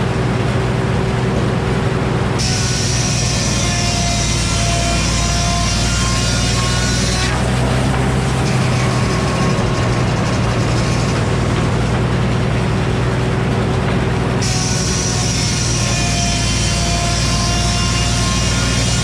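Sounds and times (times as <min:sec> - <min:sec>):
sawmill circular saw running: 0:00.0 - 0:19.0.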